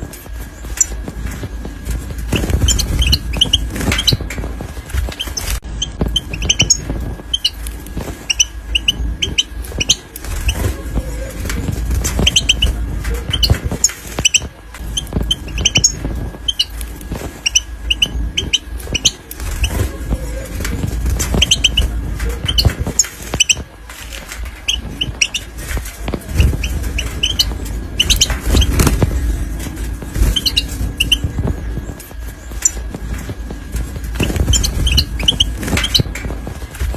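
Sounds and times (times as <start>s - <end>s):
finches chirping: 0.5s - 36.9s
low rumble: 24.2s - 36.9s.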